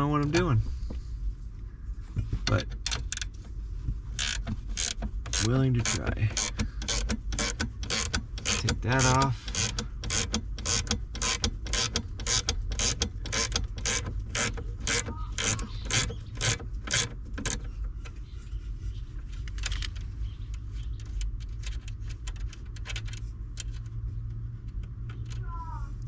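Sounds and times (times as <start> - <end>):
steady low hum: 0.0 - 26.0
hand ratchet clicking: 4.1 - 17.7.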